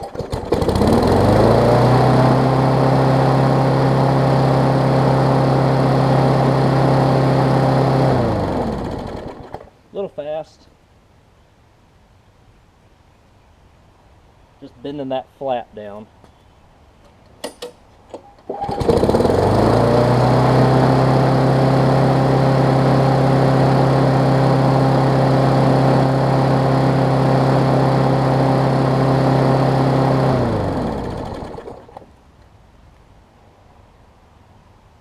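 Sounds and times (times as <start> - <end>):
lawn mower engine running: 0.0 - 9.8, 18.1 - 32.2.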